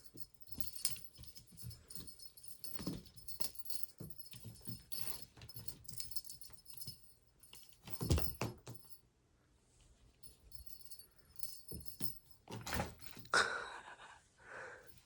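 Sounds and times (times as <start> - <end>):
small metal bell jingling: 0.0 - 9.0, 10.2 - 13.3.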